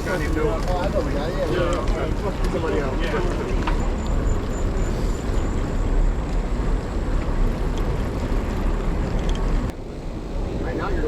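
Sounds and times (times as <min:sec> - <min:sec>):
deep continuous rumble: 0:00.0 - 0:11.0
wind buffeting microphone: 0:00.0 - 0:11.0.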